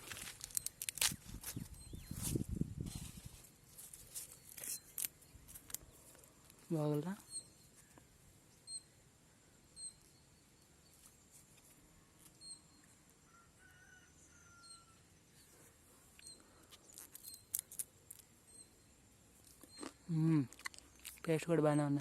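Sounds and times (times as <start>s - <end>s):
person chewing corn: 0.0s - 1.8s, 3.8s - 6.6s, 15.5s - 18.4s, 19.4s - 21.3s
small bird chirping: 0.4s - 3.2s, 3.8s - 13.1s, 14.3s - 21.8s.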